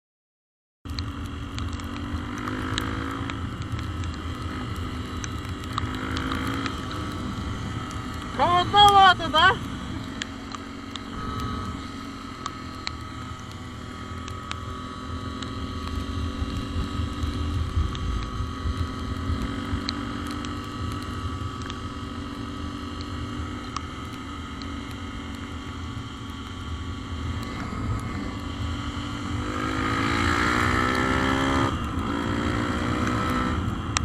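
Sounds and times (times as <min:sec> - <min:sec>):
small engine running: 0:01.6 - 0:22.4.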